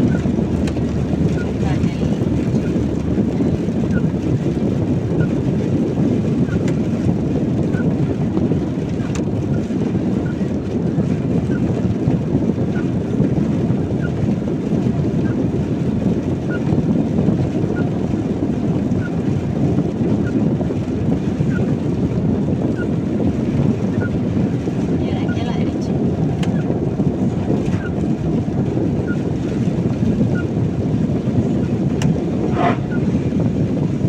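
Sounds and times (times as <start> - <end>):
car driving on wet road: 0.0 - 34.0
faint light ticks: 0.6 - 0.8.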